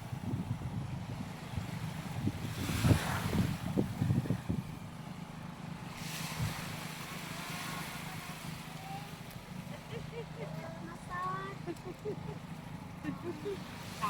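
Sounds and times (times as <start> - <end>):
wind buffeting the microphone: 0.0 - 5.0
low engine hum: 0.0 - 14.0
waves washing in: 0.0 - 14.0.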